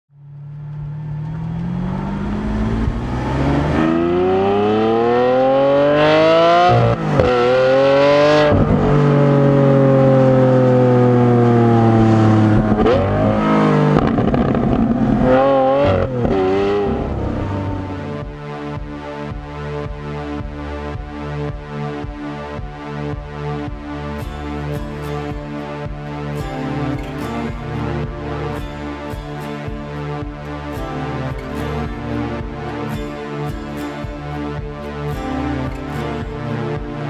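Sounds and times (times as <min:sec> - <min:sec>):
sports car engine accelerating: 0:00.1 - 0:19.4
engine throttle blips: 0:10.0 - 0:18.2.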